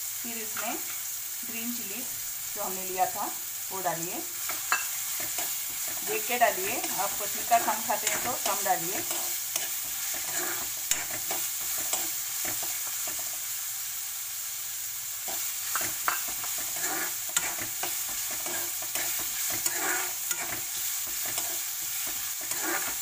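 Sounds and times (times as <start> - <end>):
onions sizzling in hot oil: 0.0 - 23.0
spatula scraping a pan: 4.4 - 13.4, 15.3 - 23.0.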